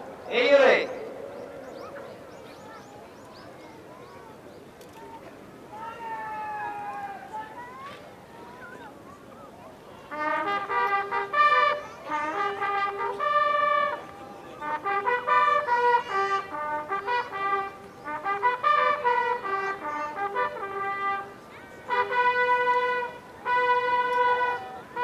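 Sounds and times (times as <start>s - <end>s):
brass fanfare trumpets: 10.1s - 25.0s.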